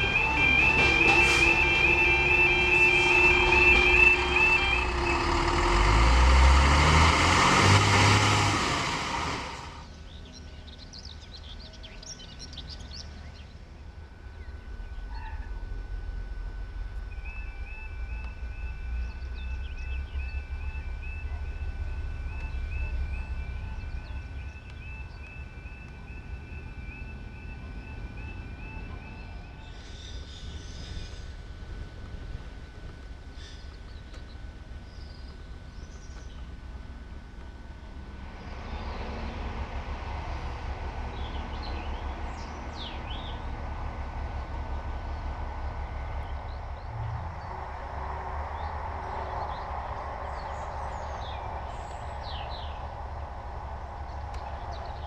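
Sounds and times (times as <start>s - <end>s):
warbling electronic alarm: 0.0s - 5.8s, 14.1s - 29.8s
train passing loudly: 0.0s - 10.0s, 37.8s - 55.0s.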